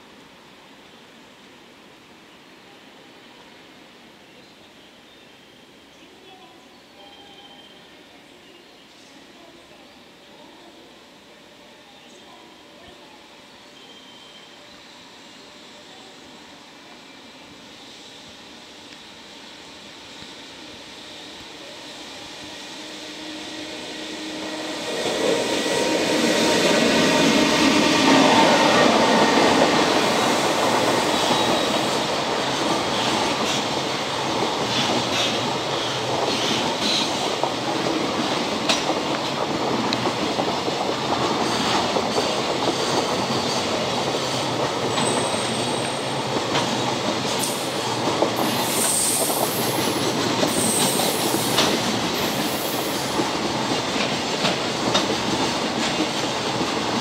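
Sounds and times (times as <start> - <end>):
freight train rumble: 14.8 - 57.0
locomotive hum: 18.3 - 42.6.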